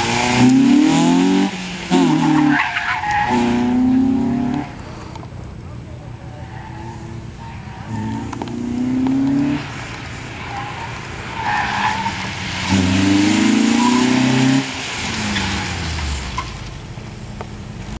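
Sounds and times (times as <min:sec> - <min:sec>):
car engine revving hard: 0:00.0 - 0:04.8, 0:12.2 - 0:16.2
tyres squealing and skidding: 0:00.0 - 0:16.9.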